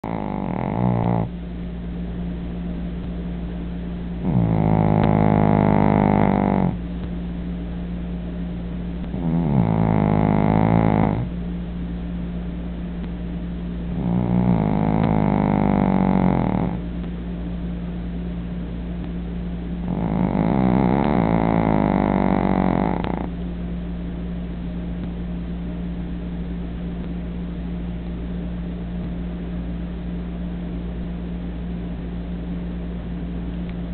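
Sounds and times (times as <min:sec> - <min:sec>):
dog snoring: 0:00.0 - 0:01.4, 0:04.2 - 0:06.8, 0:09.0 - 0:11.4, 0:13.9 - 0:17.0, 0:19.8 - 0:23.4
steady low hum: 0:00.0 - 0:33.9.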